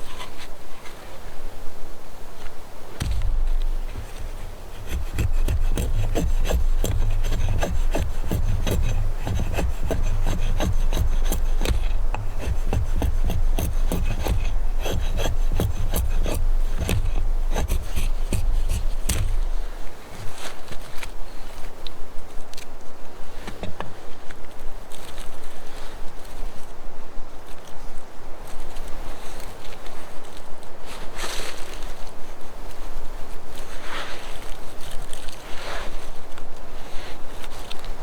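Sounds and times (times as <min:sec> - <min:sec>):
hand tool rasping wood: 0:03.0 - 0:20.4.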